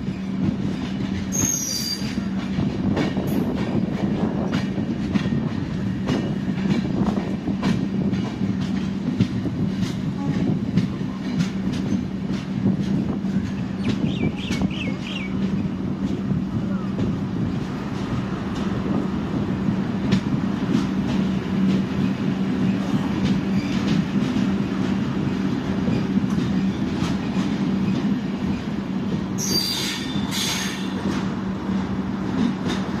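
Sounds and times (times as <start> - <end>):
train rumble and low hum: 0.0 - 33.0.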